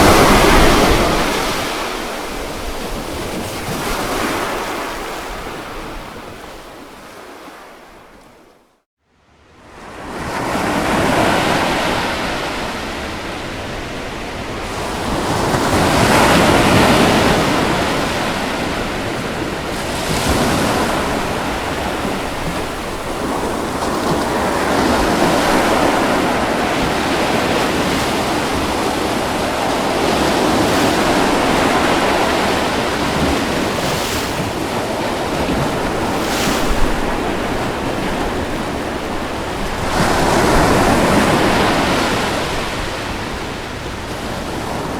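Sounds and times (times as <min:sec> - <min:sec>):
ocean waves washing onto beach: 0:00.0 - 0:08.4, 0:09.6 - 0:44.9.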